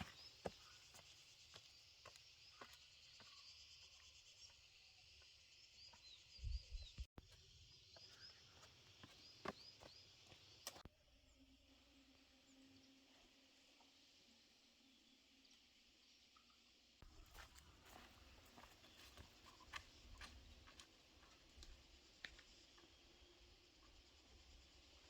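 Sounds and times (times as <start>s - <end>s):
bird chirps: 0.0s - 10.8s
insect buzz: 7.7s - 25.0s.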